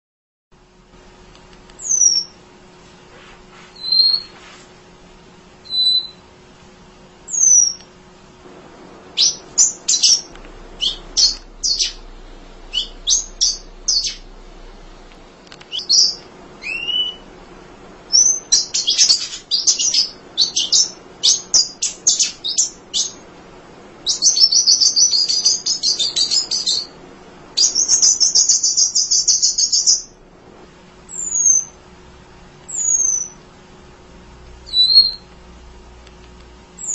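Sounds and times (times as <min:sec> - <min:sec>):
bird buzzy trills: 0:01.8 - 0:02.4, 0:03.7 - 0:04.4, 0:05.6 - 0:06.3, 0:07.2 - 0:08.0, 0:08.9 - 0:23.3, 0:23.9 - 0:30.2, 0:31.1 - 0:31.8, 0:32.7 - 0:33.4, 0:34.6 - 0:35.3
bird high downslurred calls: 0:03.7 - 0:04.3, 0:05.7 - 0:06.2, 0:07.3 - 0:07.8, 0:09.2 - 0:12.1, 0:12.7 - 0:14.3, 0:15.7 - 0:17.3, 0:18.1 - 0:23.2, 0:32.7 - 0:33.4, 0:34.7 - 0:35.2
bird sharp chips: 0:18.2 - 0:23.2.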